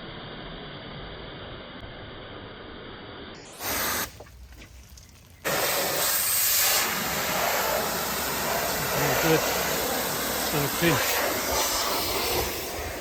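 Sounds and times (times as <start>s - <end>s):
pressure washer water jet spraying: 3.4s - 4.2s, 5.4s - 13.0s.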